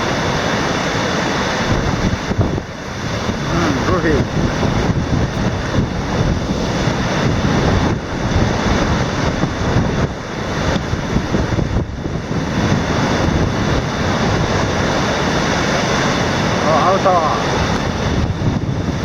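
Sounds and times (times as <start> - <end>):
strong wind gusting on microphone: 0.0 - 19.0.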